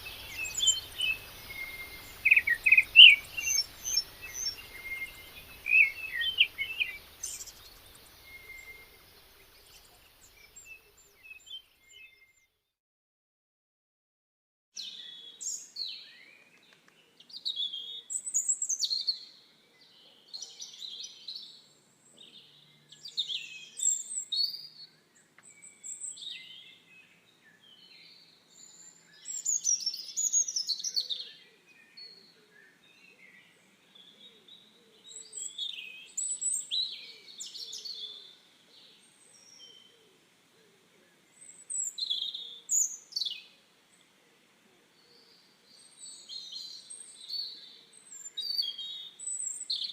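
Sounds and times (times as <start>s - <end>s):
birds chirping: 0.0s - 12.4s.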